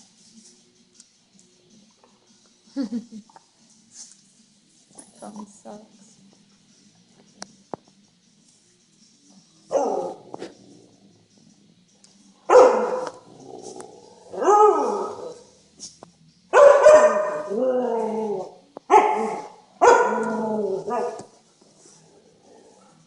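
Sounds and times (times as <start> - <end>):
dogs barking and howling: 9.7 - 10.3, 12.5 - 15.4, 16.6 - 21.3.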